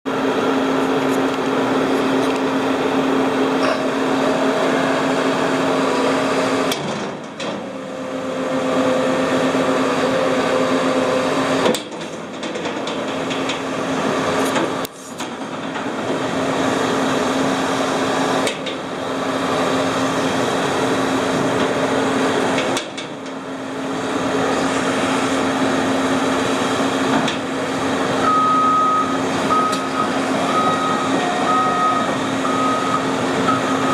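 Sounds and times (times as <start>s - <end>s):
diesel excavator engine running: 0.1s - 33.9s
travel alarm beeping: 28.2s - 33.9s.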